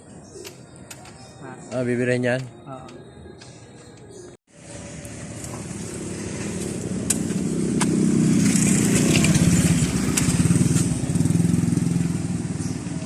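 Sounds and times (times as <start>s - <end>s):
motorcycle engine running: 4.6s - 13.0s.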